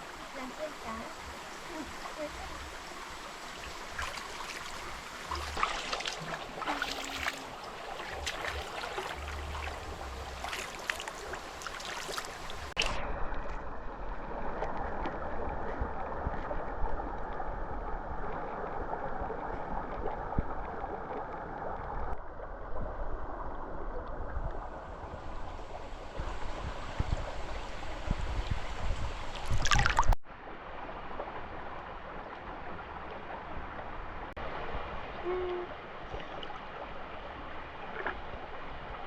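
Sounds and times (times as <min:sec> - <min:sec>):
stream water rushing: 0:00.0 - 0:13.0, 0:24.8 - 0:39.0.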